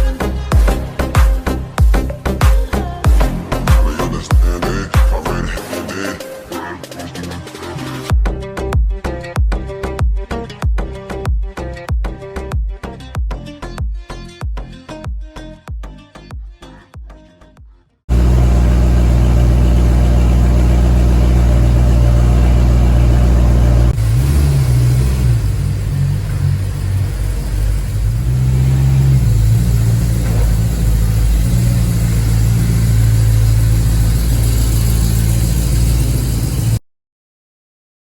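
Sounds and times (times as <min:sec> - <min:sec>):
car engine revving: 0:18.1 - 0:36.8.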